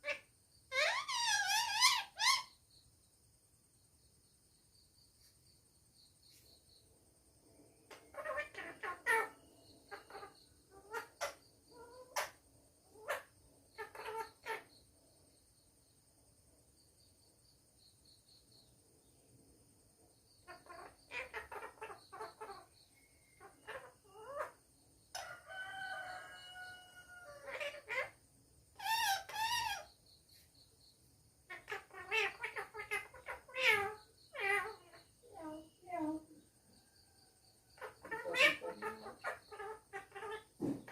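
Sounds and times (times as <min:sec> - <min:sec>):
parrot quavering call: 0:00.0 - 0:02.5, 0:20.4 - 0:22.7, 0:23.4 - 0:28.2, 0:28.8 - 0:29.9, 0:31.5 - 0:35.1, 0:37.8 - 0:40.9
parrot calling and chattering: 0:00.0 - 0:02.6, 0:07.9 - 0:12.4, 0:13.0 - 0:14.7, 0:20.4 - 0:22.7, 0:23.4 - 0:25.3, 0:26.2 - 0:30.0, 0:31.5 - 0:36.2, 0:37.8 - 0:40.9.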